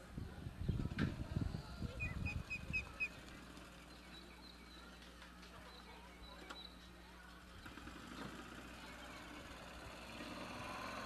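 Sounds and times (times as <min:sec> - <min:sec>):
small bird chirping: 0:05.6 - 0:08.3.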